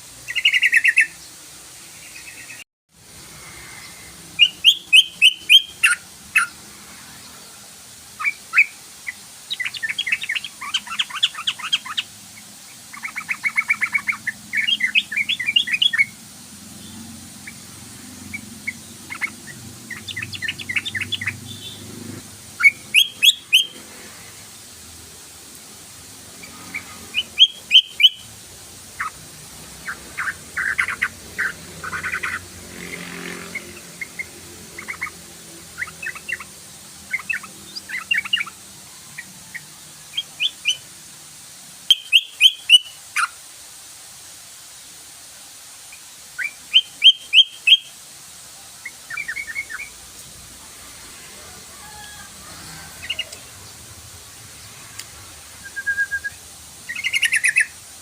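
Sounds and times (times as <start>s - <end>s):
bird chattering song: 0.3s - 2.6s, 3.8s - 6.6s, 8.2s - 22.0s, 22.6s - 23.8s, 26.4s - 28.3s, 28.9s - 29.2s, 29.8s - 38.6s, 39.2s - 40.8s, 41.9s - 43.3s, 46.4s - 48.0s, 48.8s - 50.0s, 56.9s - 57.8s.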